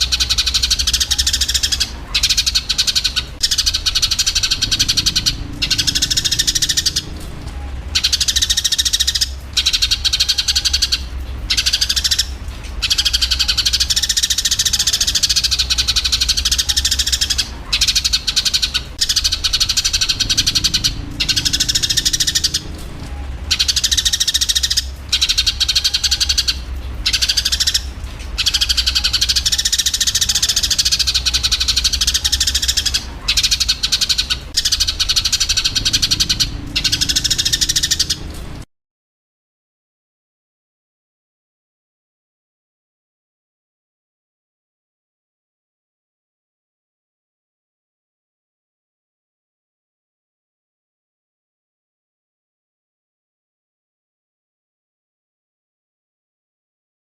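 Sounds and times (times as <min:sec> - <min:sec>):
sparrows chirping: 0:00.0 - 0:38.6
steady low hum: 0:00.0 - 0:38.7.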